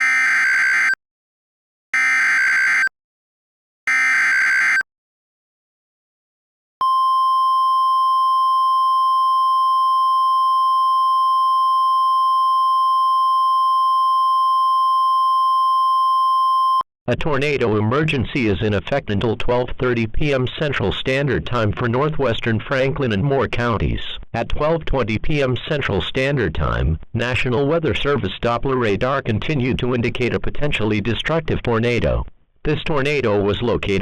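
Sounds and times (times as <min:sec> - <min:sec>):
steady warning alarm tone: 0:00.0 - 0:01.0, 0:02.0 - 0:02.9, 0:03.9 - 0:04.8.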